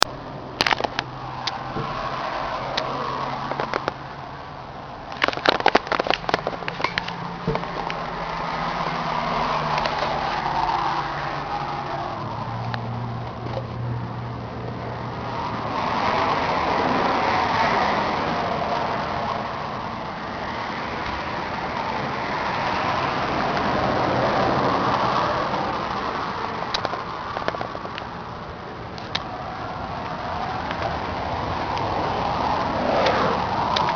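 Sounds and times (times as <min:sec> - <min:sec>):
sharp clicks: 0:00.0 - 0:02.0, 0:05.1 - 0:08.1
motor vehicle noise: 0:00.0 - 0:33.9.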